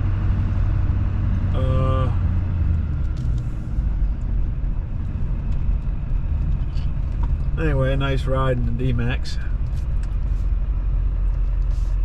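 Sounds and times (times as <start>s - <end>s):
diesel truck engine rumble: 0.0s - 12.0s
short vocal sound: 1.5s - 2.2s.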